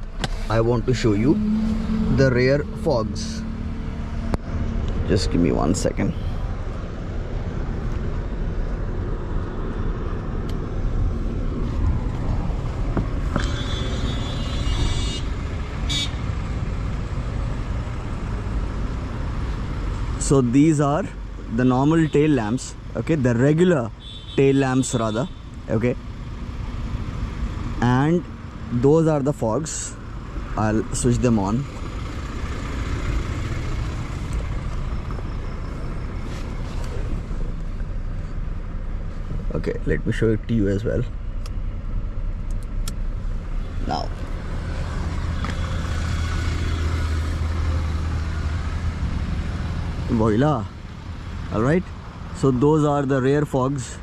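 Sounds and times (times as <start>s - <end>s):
car engine idling: 24.9s - 53.9s.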